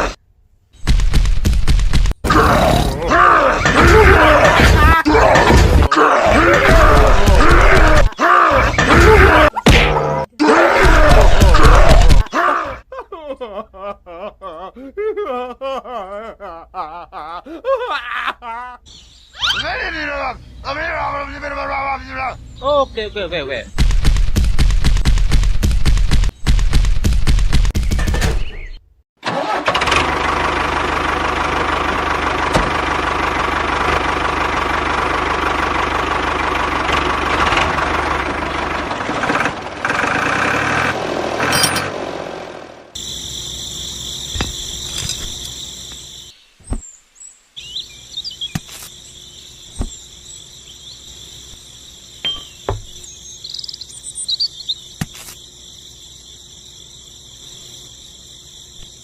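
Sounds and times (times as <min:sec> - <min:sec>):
crickets chirping: 0:42.9 - 0:59.0.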